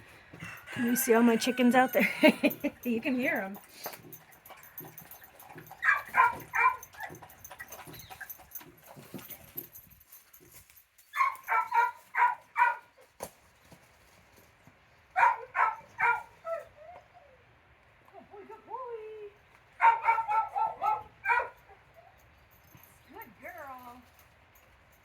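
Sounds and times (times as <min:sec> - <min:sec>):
dog barking: 0:05.8 - 0:07.2, 0:11.2 - 0:12.9, 0:15.2 - 0:16.7, 0:19.8 - 0:21.7.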